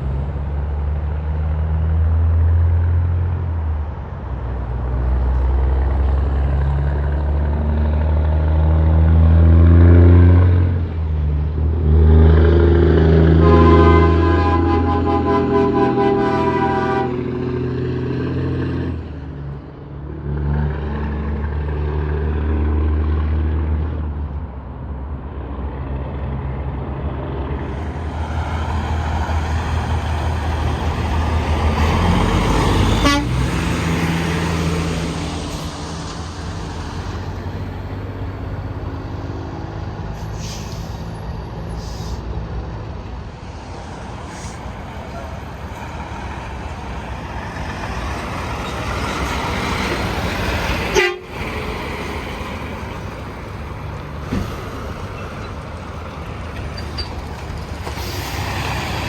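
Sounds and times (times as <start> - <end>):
trucks passing on highway: 0.0 - 59.0
truck horn: 12.9 - 17.7, 31.7 - 34.1, 50.8 - 51.5.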